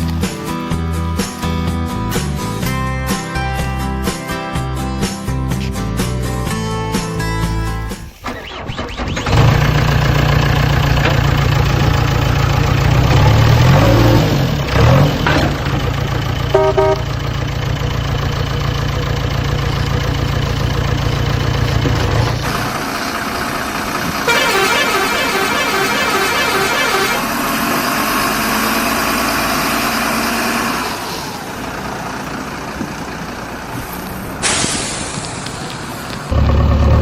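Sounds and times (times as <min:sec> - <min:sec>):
heavy vehicle engine running: 0:00.0 - 0:37.0
short horn toots: 0:16.5 - 0:17.1, 0:24.3 - 0:27.3.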